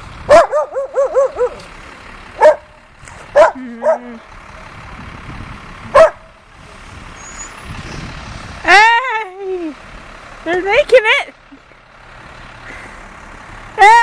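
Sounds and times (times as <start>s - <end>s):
vehicle engine running: 0.0s - 14.0s
dog barking: 0.3s - 1.6s, 2.4s - 2.7s, 3.4s - 4.0s, 6.0s - 6.3s.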